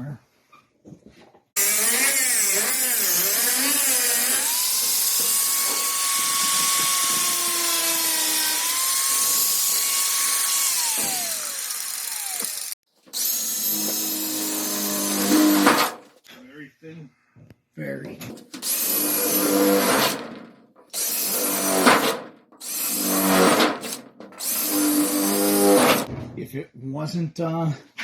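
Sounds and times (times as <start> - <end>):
power tool cutting sheet metal: 1.6 - 16.0, 18.4 - 26.1.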